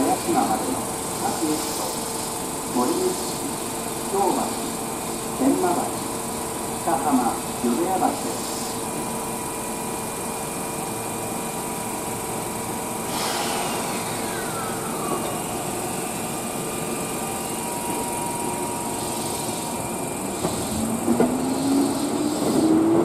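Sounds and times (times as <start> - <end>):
train running noise: 0.0 - 23.0
falling train whine: 10.8 - 23.0.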